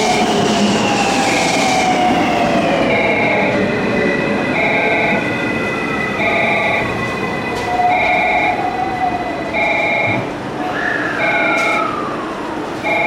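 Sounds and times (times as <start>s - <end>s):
electronic warning tone: 6.2s - 6.9s, 9.6s - 10.2s.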